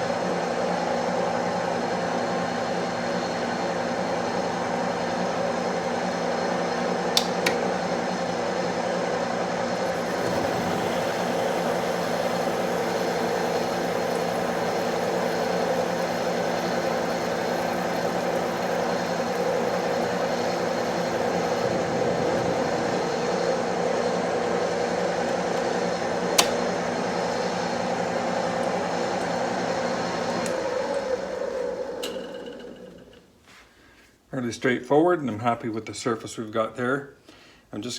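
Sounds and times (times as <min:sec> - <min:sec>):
metal lathe whining: 0:09.4 - 0:33.2.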